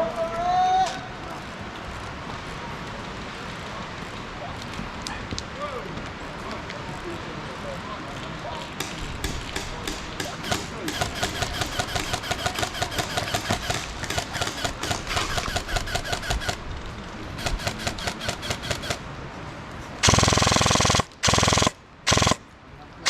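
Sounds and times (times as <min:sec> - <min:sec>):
airsoft guns firing: 0:08.8 - 0:16.7, 0:17.4 - 0:19.0, 0:20.0 - 0:22.4.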